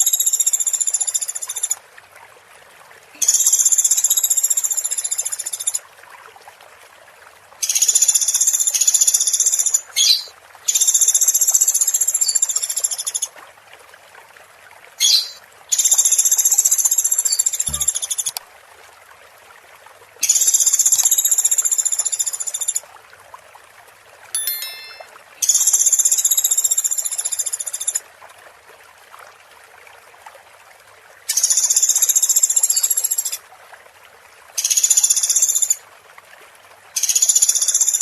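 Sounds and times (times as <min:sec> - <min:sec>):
running water hiss: 0:03.0 - 0:05.8, 0:07.6 - 0:13.3, 0:15.0 - 0:18.4, 0:20.2 - 0:22.8, 0:31.3 - 0:33.4.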